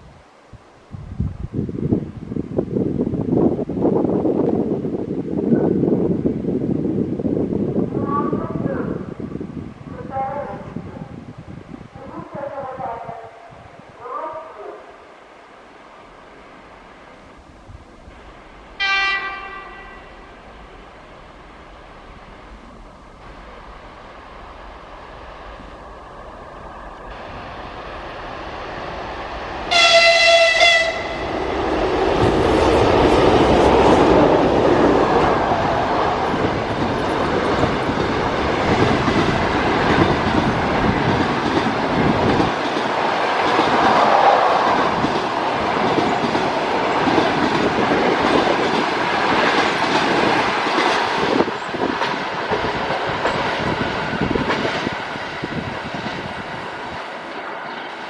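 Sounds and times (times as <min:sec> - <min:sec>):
train wheels rushing on rails: 0:15.1 - 0:58.0
locomotive horn: 0:18.8 - 0:20.3, 0:29.7 - 0:31.2.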